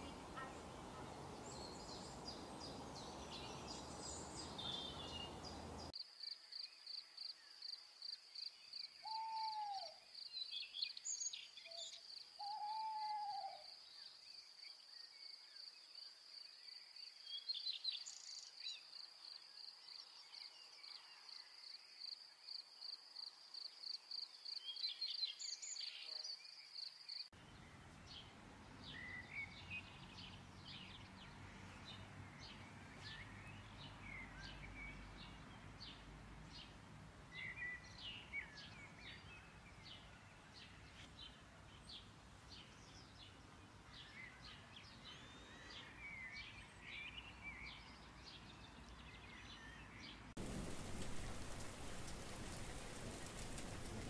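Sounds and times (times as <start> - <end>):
birds whistling calls: 0.0 - 5.9
chorus of high bird chirps: 0.0 - 6.0.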